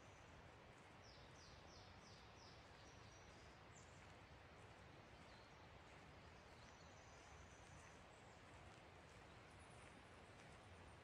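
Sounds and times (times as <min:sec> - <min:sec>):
bird song: 0:01.0 - 0:04.1, 0:04.9 - 0:08.5.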